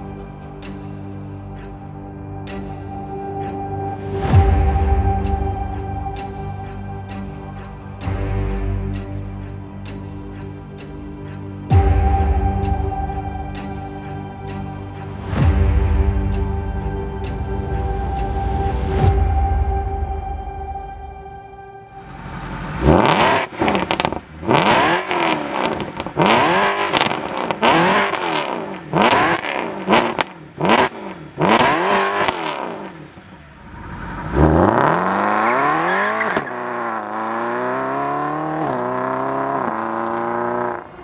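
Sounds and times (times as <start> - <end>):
car accelerating hard: 22.0 - 41.0
car engine revving: 22.0 - 41.0.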